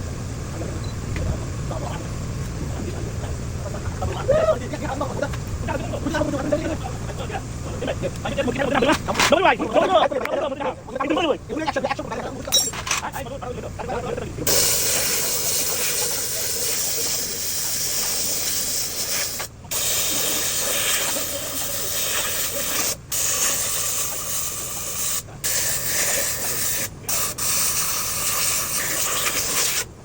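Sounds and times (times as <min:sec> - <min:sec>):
pressurised spray hissing: 0:14.4 - 0:30.0.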